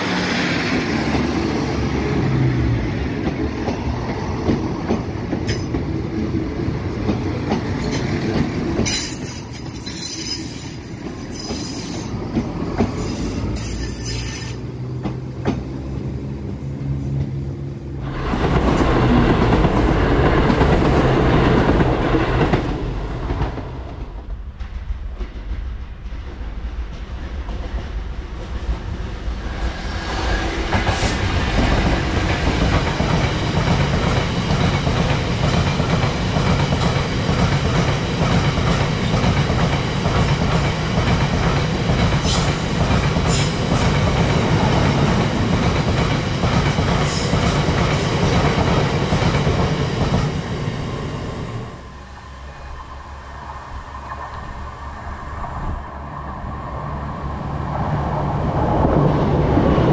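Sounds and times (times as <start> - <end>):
diesel train passing: 0.0 - 59.9
freight train rumble: 0.0 - 59.9
metallic clicks and squeals: 8.9 - 12.1, 13.0 - 14.7.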